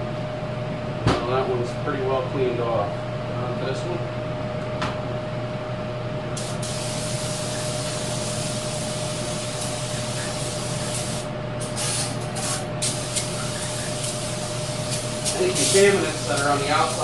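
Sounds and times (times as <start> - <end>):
steady hum: 0.0 - 17.0
spray hissing: 6.4 - 17.0.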